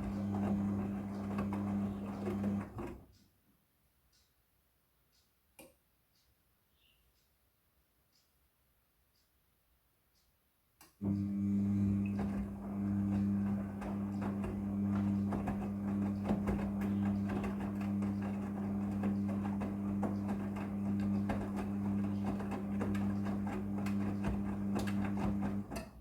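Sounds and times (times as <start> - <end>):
washing machine motor hum: 0.0 - 3.1, 11.0 - 26.0.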